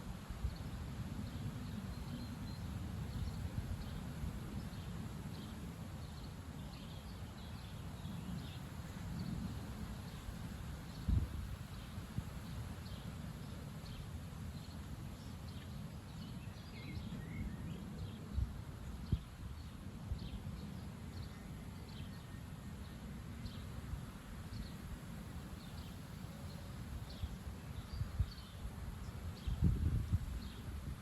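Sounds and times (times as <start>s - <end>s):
wind buffeting microphone: 7.5s - 13.4s, 27.0s - 31.0s
small birds chirping: 25.5s - 30.7s.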